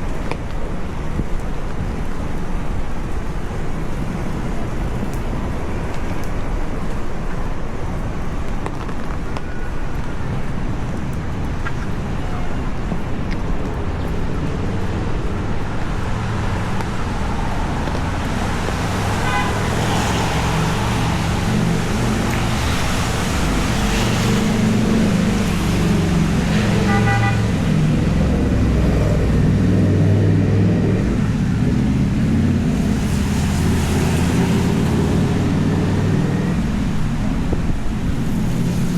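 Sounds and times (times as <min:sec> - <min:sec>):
cars passing: 0:09.8 - 0:38.9.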